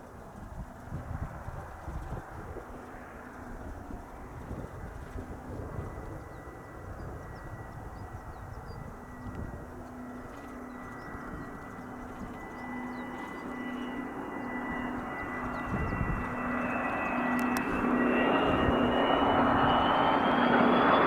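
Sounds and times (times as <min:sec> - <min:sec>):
jet engines whining: 0:02.7 - 0:21.0
jet rushing noise: 0:15.0 - 0:20.9.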